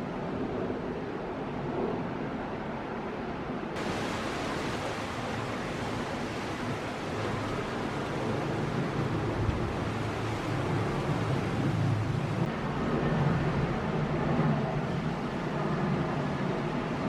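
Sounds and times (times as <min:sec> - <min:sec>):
jet airliner engine rushing: 0:03.4 - 0:17.0.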